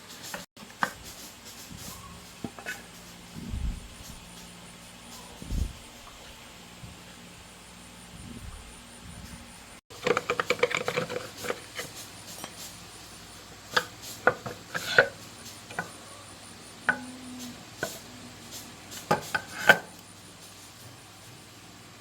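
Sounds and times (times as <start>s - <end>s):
tools and metal parts knocking: 9.9s - 12.7s.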